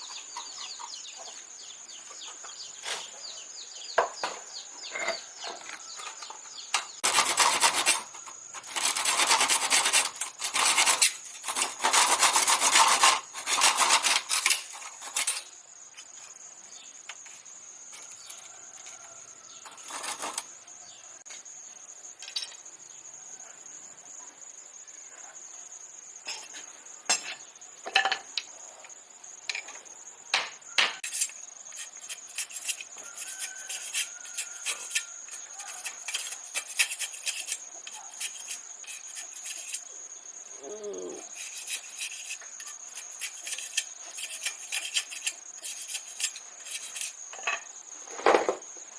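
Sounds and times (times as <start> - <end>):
rasping scraping strokes: 7.0 - 15.5, 19.7 - 20.4, 31.0 - 40.0, 41.0 - 47.4.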